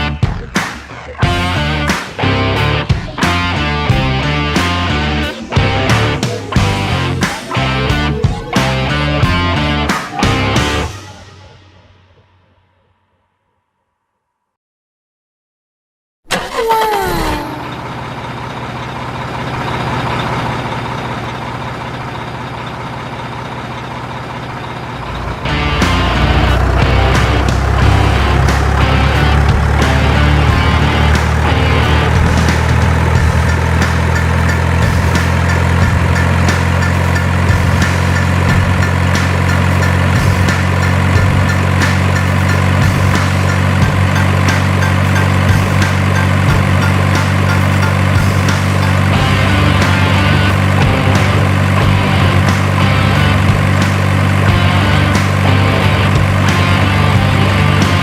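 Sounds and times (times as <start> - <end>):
dump truck engine running: 0.0 - 12.0, 16.3 - 58.0
short falling whine: 24.3 - 40.0.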